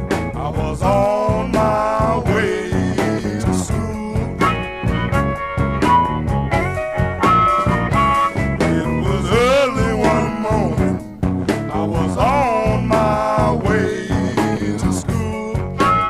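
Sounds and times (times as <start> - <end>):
blues band playing: 0.0 - 16.0
lead guitar bending notes: 1.2 - 11.8.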